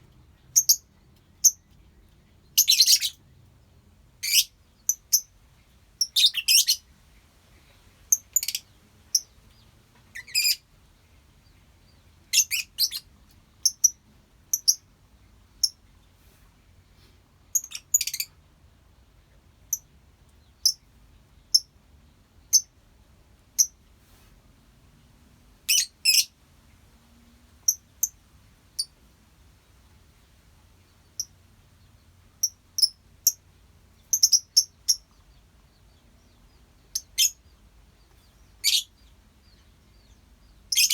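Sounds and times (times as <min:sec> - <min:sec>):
lovebirds chirping: 0:00.2 - 0:16.2, 0:16.8 - 0:18.4, 0:25.7 - 0:26.4, 0:30.1 - 0:40.9.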